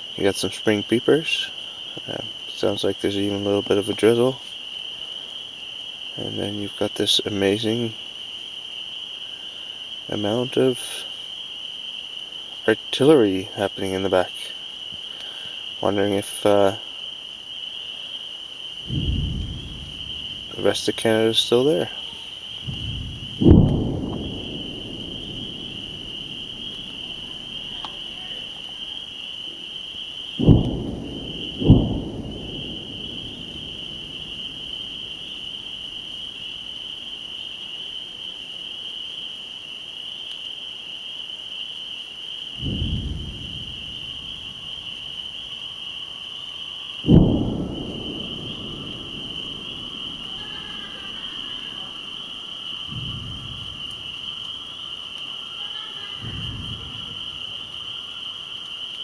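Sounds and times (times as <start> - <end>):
chorus of spring peepers: 0.0 - 59.0
distant low booms: 18.7 - 37.3, 42.5 - 45.7, 46.9 - 55.2, 56.2 - 58.4.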